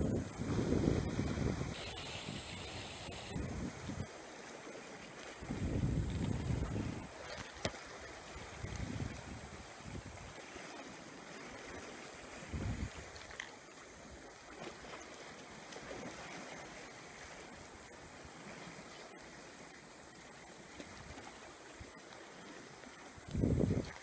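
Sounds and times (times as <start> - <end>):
wind buffet on microphone: 0.0 - 4.1, 5.4 - 7.3, 8.4 - 10.3, 12.4 - 13.1, 23.2 - 24.0
light wind: 0.0 - 18.9, 20.4 - 24.0
sea water lapping: 0.0 - 24.0.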